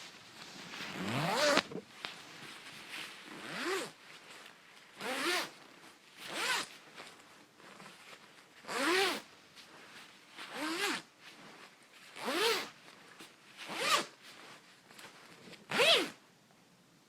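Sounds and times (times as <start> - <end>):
metal zipper zipping: 0.8 - 1.8, 3.2 - 4.0, 5.0 - 5.6, 6.2 - 6.8, 8.6 - 9.3, 10.5 - 11.1, 12.2 - 12.8, 13.6 - 14.2, 15.7 - 16.2.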